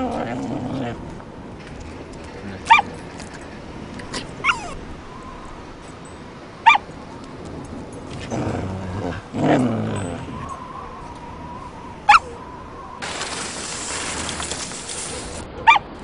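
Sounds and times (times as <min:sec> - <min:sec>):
dog yipping: 0:02.7 - 0:02.9, 0:04.4 - 0:04.8, 0:06.6 - 0:06.9, 0:12.1 - 0:12.4, 0:15.1 - 0:15.9.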